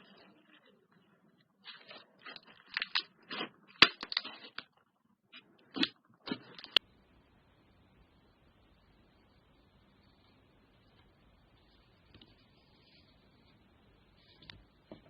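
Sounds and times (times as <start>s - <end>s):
slime being squished by hand: 1.6s - 4.6s.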